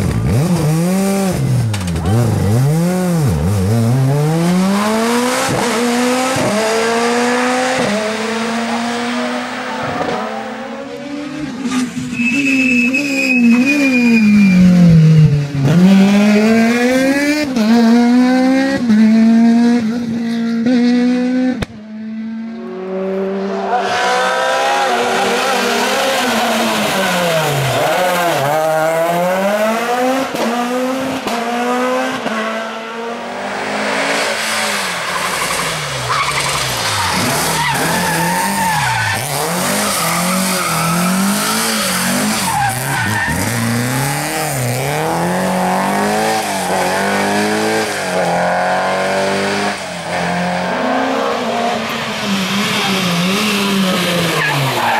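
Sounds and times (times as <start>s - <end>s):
rally car engine revving: 0.0s - 54.9s
tyres squealing and skidding: 8.7s - 15.4s, 34.2s - 44.4s, 51.5s - 54.9s.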